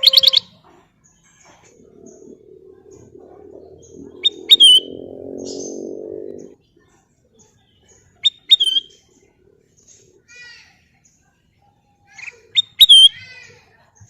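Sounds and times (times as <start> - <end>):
faint high chirps: 0.0 - 10.2
low hum: 1.4 - 6.6
bulbul whistled calls: 1.6 - 6.5, 8.2 - 9.0.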